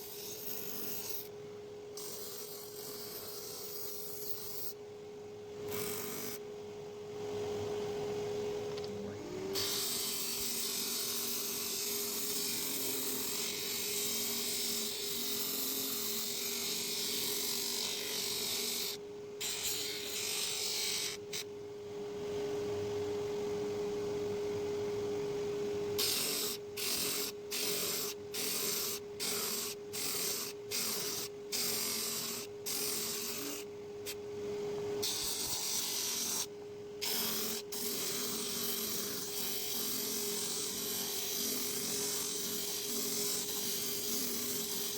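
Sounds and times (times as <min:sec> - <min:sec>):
power tool sanding wood: 0:26.0 - 0:33.6, 0:35.0 - 0:44.9.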